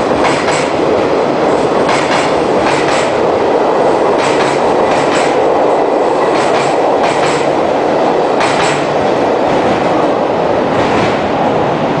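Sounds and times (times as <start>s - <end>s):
train coaches rumbling past: 0.0s - 12.0s
train wheels clacking over joints: 0.2s - 0.8s, 1.8s - 3.2s, 4.1s - 5.6s, 6.2s - 7.6s, 8.4s - 9.0s.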